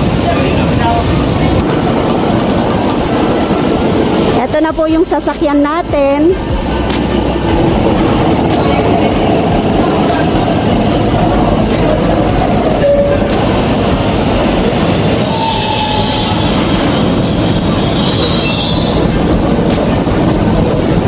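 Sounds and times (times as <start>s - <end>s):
train wheels rumbling on rail: 0.0s - 21.0s
brake squeal: 15.1s - 19.3s.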